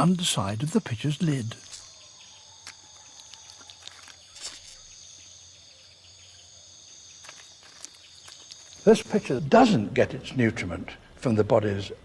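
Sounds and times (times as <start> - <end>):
insects trilling: 0.0 - 9.9
faint clicks and rustles: 2.6 - 4.9.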